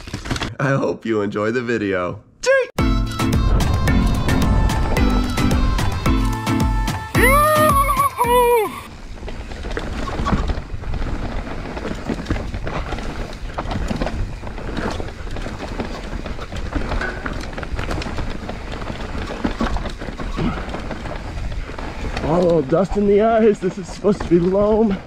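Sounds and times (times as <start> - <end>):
tyres on loose dirt: 7.2 - 25.0
bike rattling over bumps: 8.9 - 25.0.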